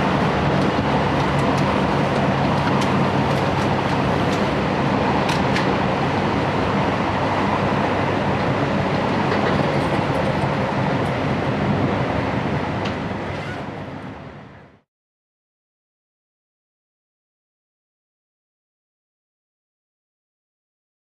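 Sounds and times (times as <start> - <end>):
train car rumble and hiss: 0.0 - 14.8.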